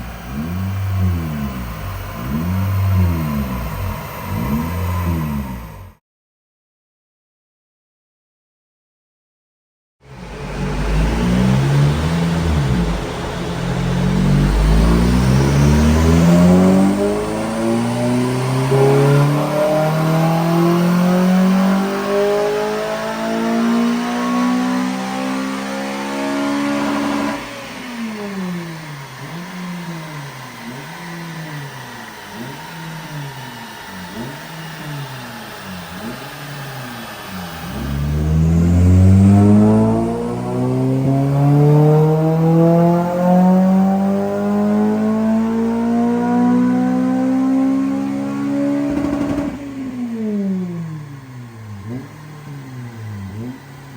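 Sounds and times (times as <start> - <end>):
car engine at full throttle: 0.0 - 6.0, 10.0 - 53.9.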